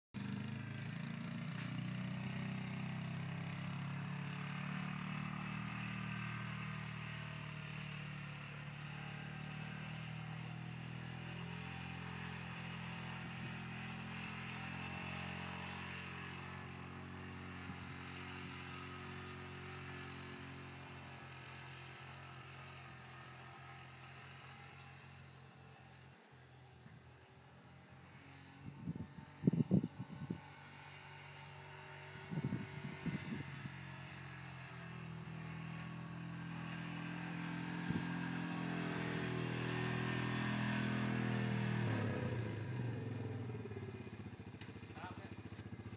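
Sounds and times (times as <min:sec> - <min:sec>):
low engine drone: 0:24.8 - 0:45.9.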